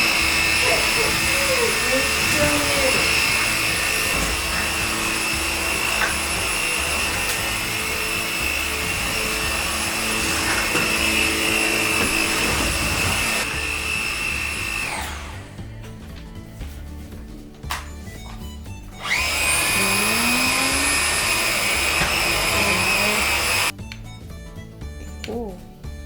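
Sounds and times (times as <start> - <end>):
vacuum cleaner whine: 0.0 - 15.7, 19.0 - 23.7
vacuum motor winding down: 0.0 - 15.7, 19.0 - 23.7.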